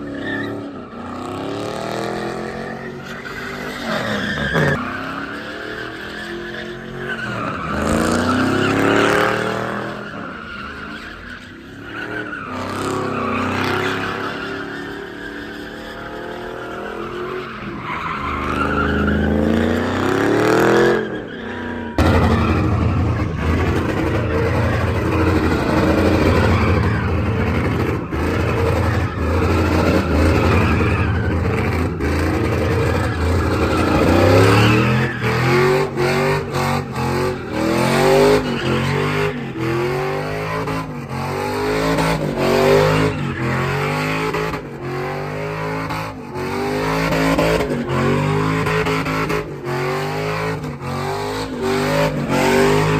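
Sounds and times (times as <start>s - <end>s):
tyres skidding and squealing: 0.0s - 52.9s
vehicle engine revving hard: 18.2s - 52.9s.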